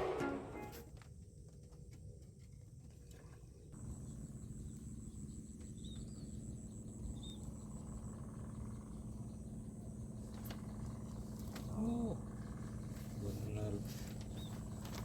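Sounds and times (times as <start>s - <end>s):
low steady hum: 2.5s - 15.0s
insect trill: 3.8s - 15.0s.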